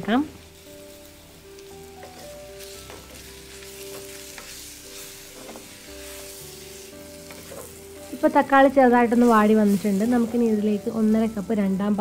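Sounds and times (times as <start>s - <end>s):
soft background music: 0.0s - 12.0s
vegetables sizzling in oil: 0.0s - 12.0s
spatula scraping and tapping: 1.9s - 8.2s.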